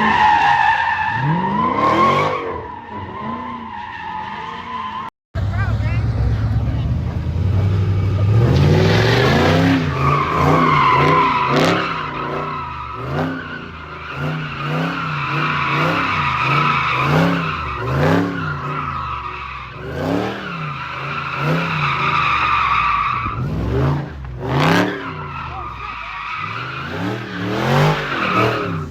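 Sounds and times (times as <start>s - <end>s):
tire squeal: 0.0s - 5.1s, 7.6s - 28.9s
car engine revving: 5.4s - 28.9s.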